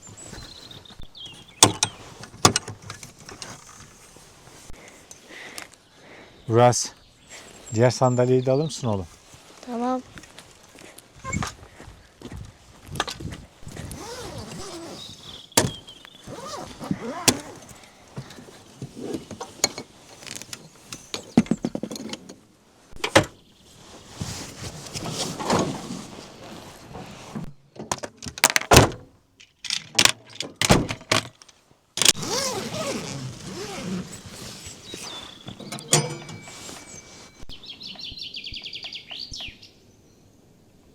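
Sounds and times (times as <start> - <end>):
camp chairs thunking and rattling: 0.0 - 5.2, 10.2 - 23.4, 24.0 - 37.5.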